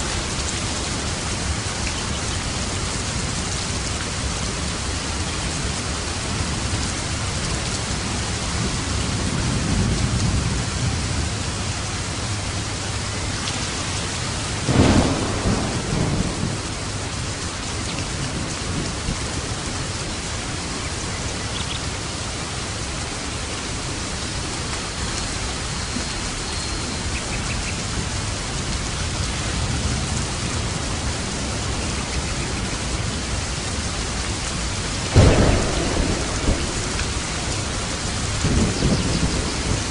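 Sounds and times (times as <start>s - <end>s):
low rolling thunder: 0.0s - 12.6s, 13.8s - 20.7s, 27.9s - 39.9s
steady rain pouring: 0.0s - 39.9s
sharp thunder crack: 14.7s - 16.9s, 35.1s - 39.9s.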